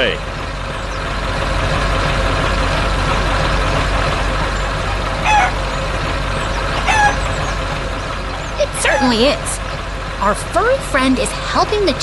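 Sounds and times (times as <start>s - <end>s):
tractor engine running: 0.0s - 12.0s
chicken clucks: 6.5s - 7.4s.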